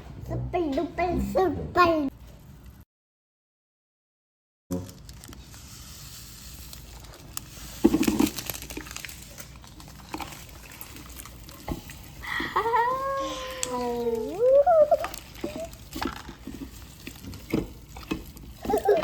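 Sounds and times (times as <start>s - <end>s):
slime squelching by hand: 4.7s - 19.0s.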